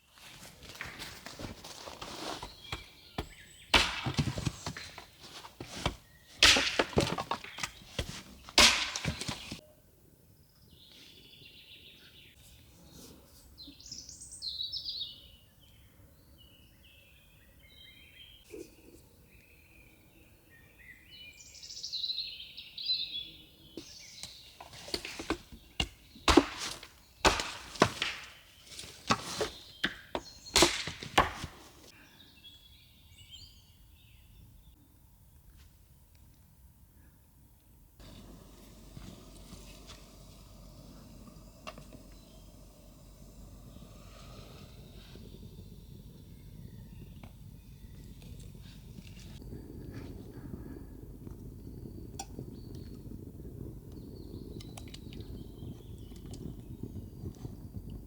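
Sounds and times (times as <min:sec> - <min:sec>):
birds chirping: 0:00.7 - 0:09.8, 0:10.4 - 0:34.8, 0:38.0 - 0:57.8
knocks and clatter of work: 0:02.8 - 0:09.6.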